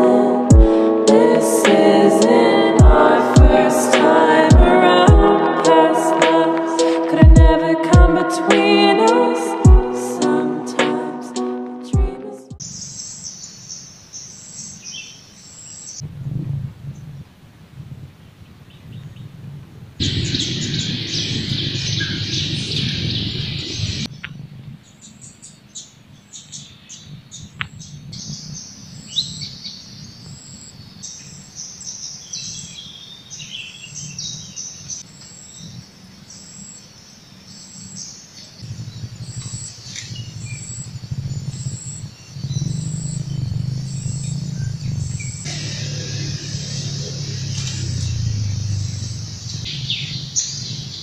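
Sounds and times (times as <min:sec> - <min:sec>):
birds chirping and calling: 0:12.6 - 0:16.0, 0:20.0 - 0:24.3, 0:24.9 - 0:51.0
faint low hum: 0:38.6 - 0:51.0.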